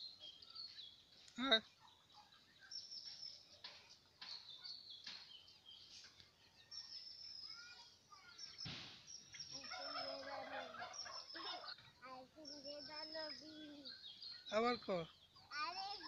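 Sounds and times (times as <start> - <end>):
turkeys high peeping calls: 9.2 - 12.6.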